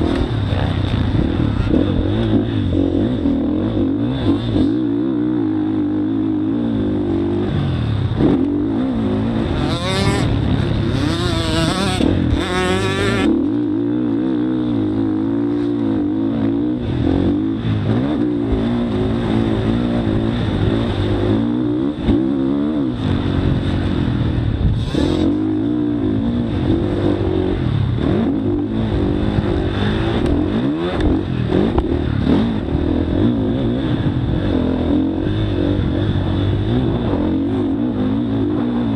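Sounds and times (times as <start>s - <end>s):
high wavering engine noise: 0.0s - 38.9s
motocross bike engine revving: 0.0s - 38.9s.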